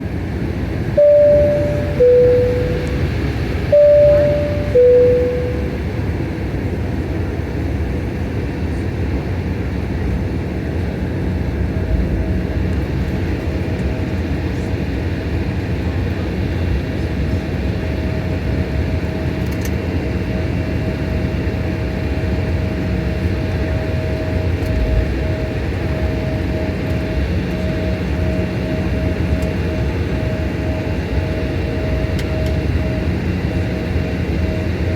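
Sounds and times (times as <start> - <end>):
jet engines rumbling: 0.2 - 6.2
thin steady whine: 1.0 - 5.9.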